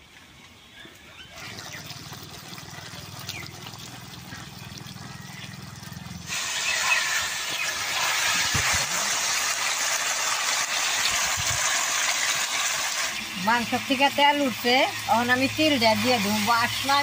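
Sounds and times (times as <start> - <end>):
meat and potatoes sizzling in oil: 6.2 - 17.0.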